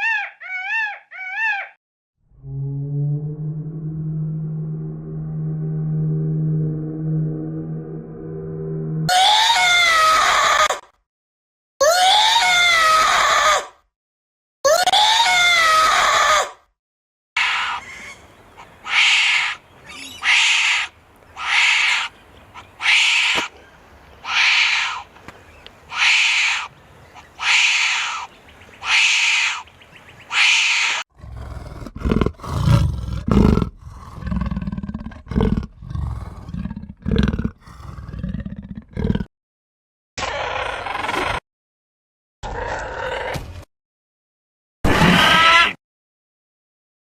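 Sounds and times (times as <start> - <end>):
high-pitched animal calls: 0.0 - 1.8, 17.4 - 23.5, 24.2 - 25.1, 25.9 - 29.7, 30.3 - 32.7
low irregular animal grunts: 31.1 - 39.3.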